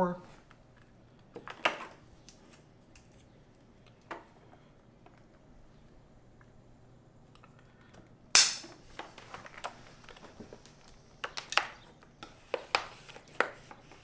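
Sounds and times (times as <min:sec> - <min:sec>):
trim strip snapping: 0:08.4 - 0:08.7.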